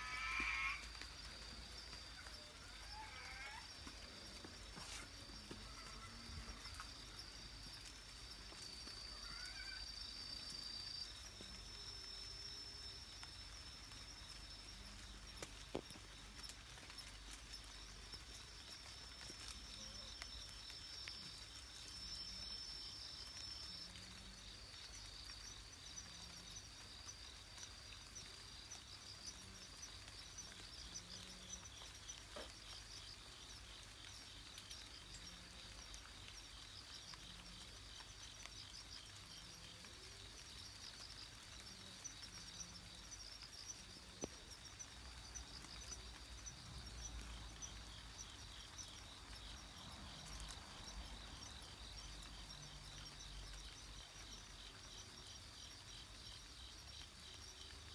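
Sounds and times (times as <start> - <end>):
faint low animal call: 0.0 - 7.4, 8.9 - 9.9
insects trilling: 0.0 - 57.9.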